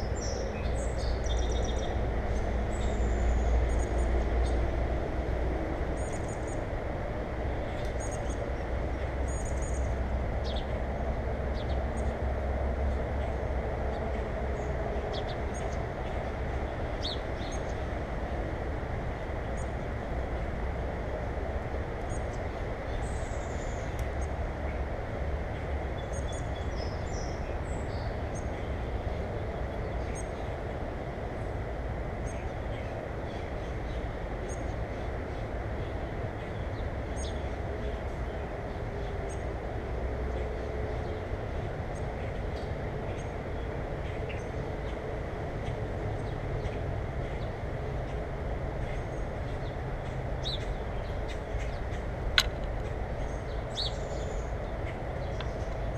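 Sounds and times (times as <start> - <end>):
small birds chirping: 0.0 - 4.6, 48.8 - 55.9.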